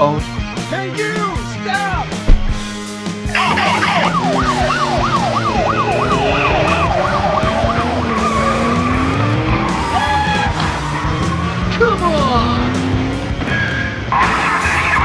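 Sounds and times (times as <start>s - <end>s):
police siren yelping: 3.3s - 11.7s, 14.2s - 15.0s.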